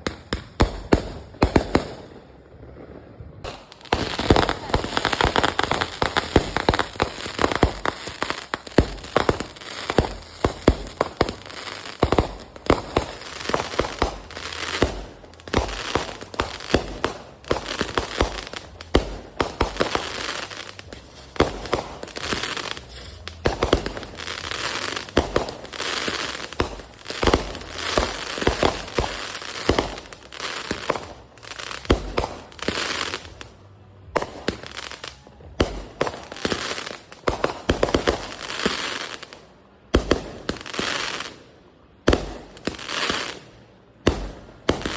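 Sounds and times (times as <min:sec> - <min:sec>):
fireworks bangs and crackling: 0:00.0 - 0:44.9
fireworks hiss: 0:03.5 - 0:35.2.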